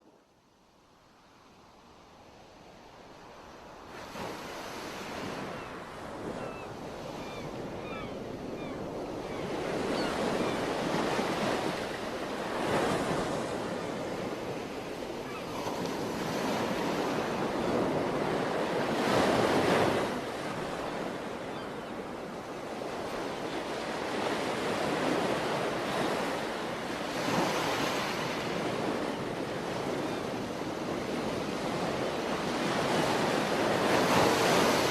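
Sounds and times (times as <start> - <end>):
sea waves breaking: 22.8 - 34.9.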